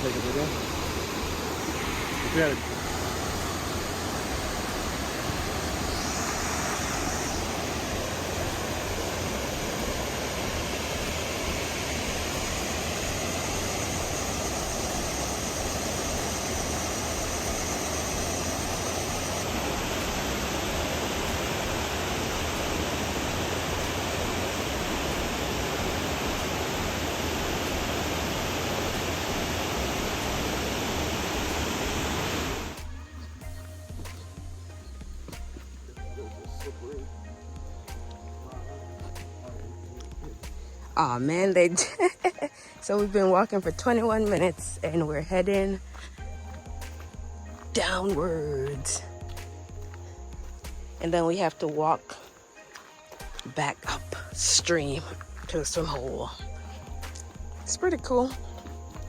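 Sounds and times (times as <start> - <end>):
waterfall rushing: 0.0 - 49.5.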